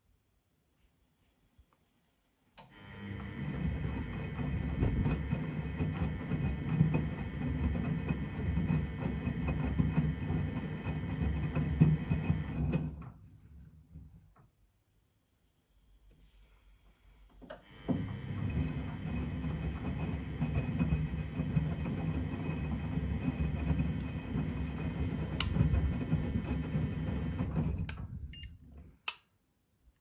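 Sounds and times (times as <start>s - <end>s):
washing machine drum whining: 2.8s - 13.1s, 17.7s - 28.5s
washing machine click: 19.9s - 27.0s.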